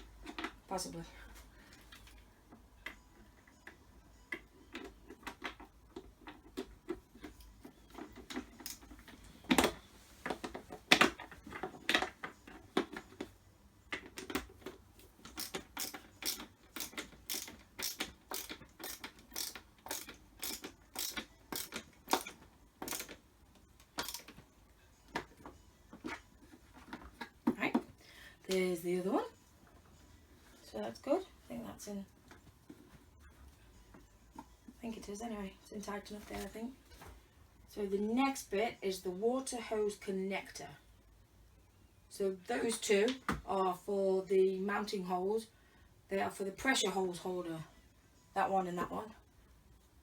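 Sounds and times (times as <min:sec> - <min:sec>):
screwdriver clicks: 0:15.3 - 0:23.2.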